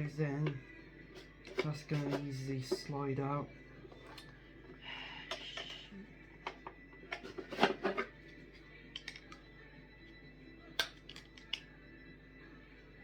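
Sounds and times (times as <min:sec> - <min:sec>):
plastic parts clicking and knocking: 0:10.8 - 0:11.6.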